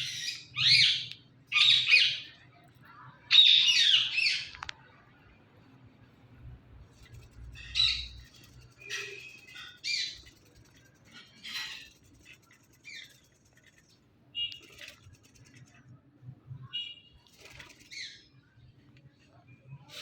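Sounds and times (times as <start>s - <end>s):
parakeet chirping and squawking: 0.0s - 2.4s, 3.3s - 4.5s, 7.3s - 13.4s, 17.6s - 18.3s.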